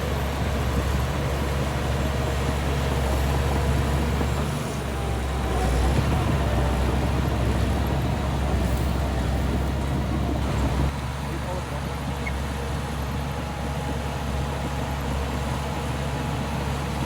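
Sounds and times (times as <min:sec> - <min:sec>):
heavy diesel engine running: 0:00.0 - 0:17.0.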